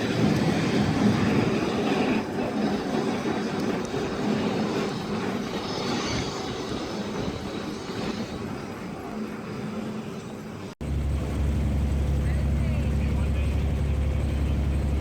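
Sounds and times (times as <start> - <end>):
low hum: 10.8 - 15.0
moving vehicle rumbling: 10.8 - 15.0.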